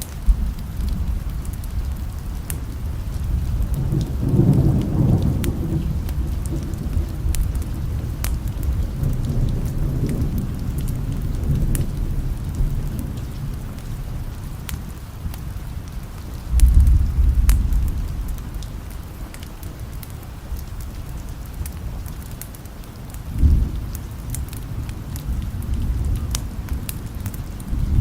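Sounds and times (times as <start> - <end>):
low rumble of thunder: 0.0 - 28.0
sharp crackles: 0.0 - 28.0
steady rain: 0.0 - 28.0.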